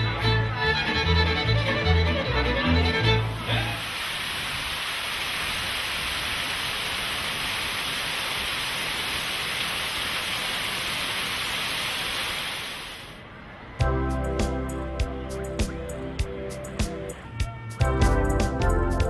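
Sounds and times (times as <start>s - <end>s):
falling water rushing: 1.0s - 13.3s.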